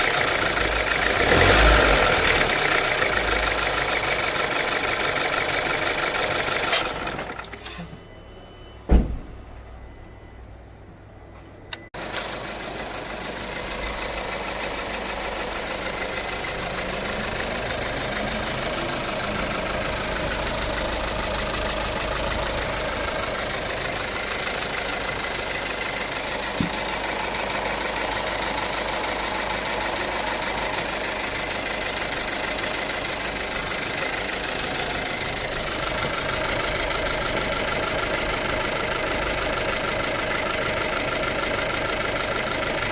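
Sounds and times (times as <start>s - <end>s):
car engine idling: 0.0s - 7.6s, 12.0s - 42.9s
car engine with ticking noise: 0.0s - 7.8s, 11.0s - 42.9s
thump: 8.9s - 9.4s, 26.5s - 26.8s.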